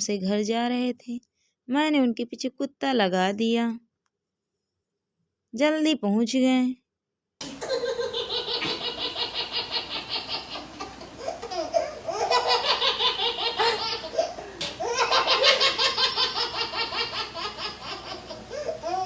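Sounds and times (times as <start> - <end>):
high-pitched giggling laughter: 7.5 - 19.0.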